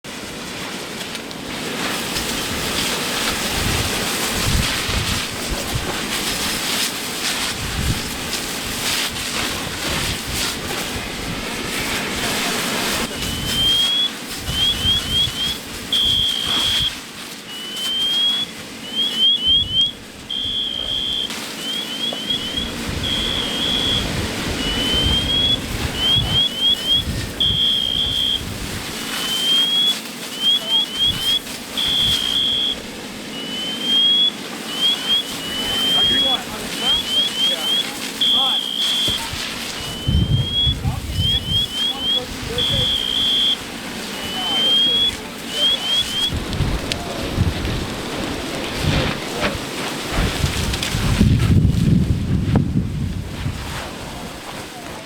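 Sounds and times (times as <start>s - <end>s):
wind buffeting microphone: 1.4s - 17.2s, 18.5s - 29.4s, 30.9s - 55.0s
car alarm whooping and warbling: 13.1s - 28.5s, 29.1s - 46.4s.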